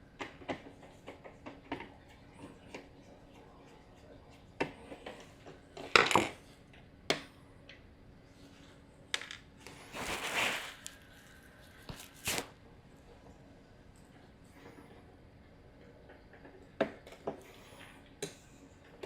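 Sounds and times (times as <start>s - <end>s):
scraping rustle: 9.7s - 12.5s.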